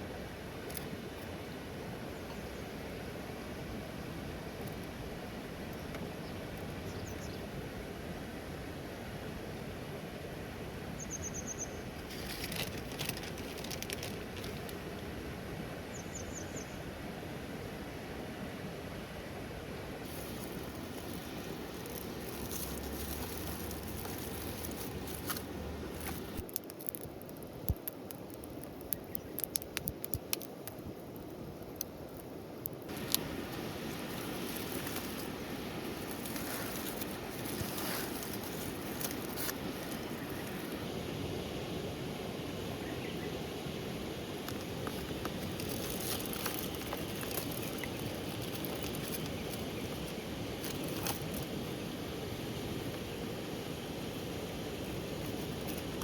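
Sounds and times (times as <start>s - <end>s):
rain pattering: 12.3s - 14.8s, 20.1s - 35.3s, 44.4s - 51.4s
sharp clicks and ticks: 26.4s - 30.8s.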